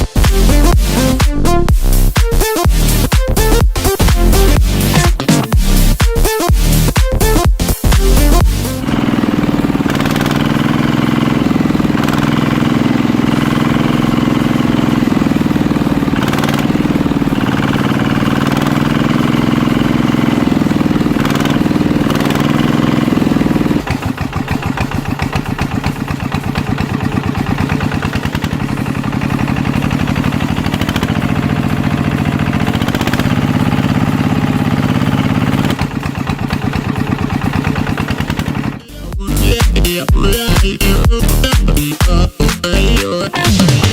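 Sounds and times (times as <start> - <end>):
small diesel engine chugging: 0.0 - 43.9.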